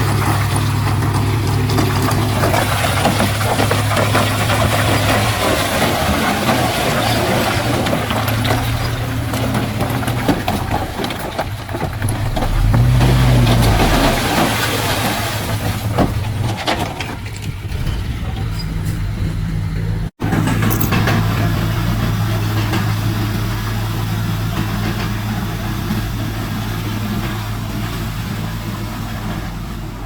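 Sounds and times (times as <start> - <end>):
heavy diesel engine running: 0.0 - 30.0
metal knocks and clanks: 0.4 - 21.4.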